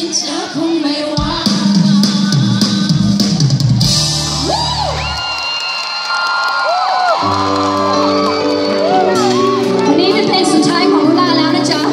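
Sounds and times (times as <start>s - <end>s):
live pop band playing: 0.0s - 5.4s, 7.2s - 11.9s
crowd whooping and cheering: 3.8s - 11.0s.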